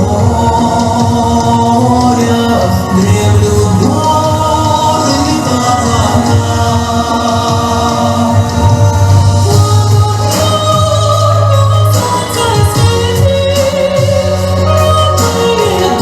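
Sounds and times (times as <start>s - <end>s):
instrumental accompaniment: 0.0s - 16.0s
choir singing: 3.8s - 16.0s.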